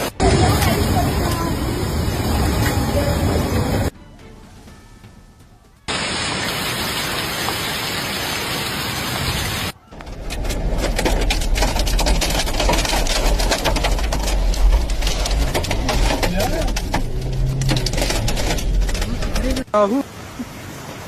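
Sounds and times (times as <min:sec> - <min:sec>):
heavy rain pouring: 0:00.0 - 0:03.9, 0:05.9 - 0:21.0
hail pelting a hard surface: 0:05.9 - 0:19.6
low rumble: 0:10.0 - 0:19.6.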